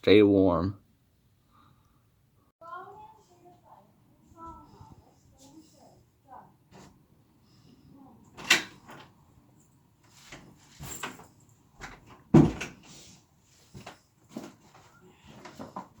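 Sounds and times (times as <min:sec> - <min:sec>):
knocks and thumps: 0:11.8 - 0:12.8.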